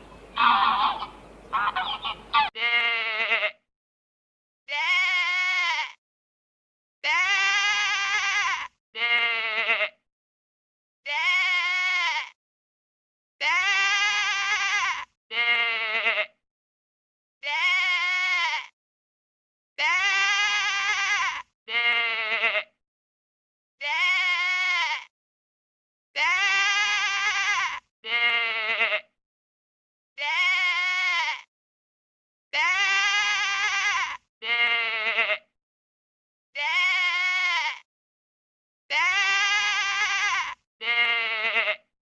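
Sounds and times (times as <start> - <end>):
bleating calls: 0.0 - 3.6, 4.7 - 6.0, 7.0 - 10.0, 11.1 - 12.4, 13.4 - 16.4, 17.4 - 18.8, 19.8 - 22.7, 23.8 - 25.1, 26.2 - 29.1, 30.2 - 31.5, 32.6 - 35.5, 36.6 - 37.9, 38.9 - 41.9.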